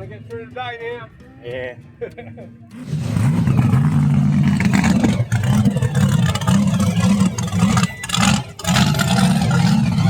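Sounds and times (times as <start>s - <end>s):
vehicle engine revving: 2.7s - 10.0s.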